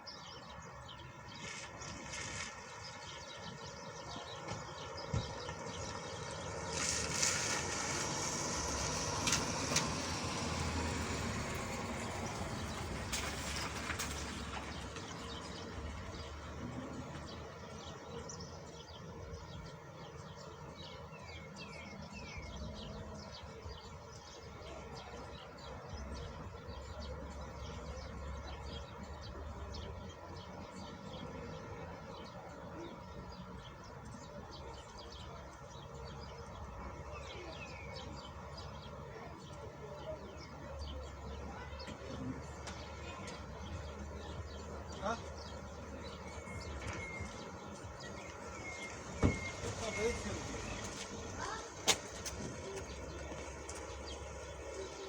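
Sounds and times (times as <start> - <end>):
small birds chirping: 0.0 - 55.0
rain pattering: 5.6 - 15.2.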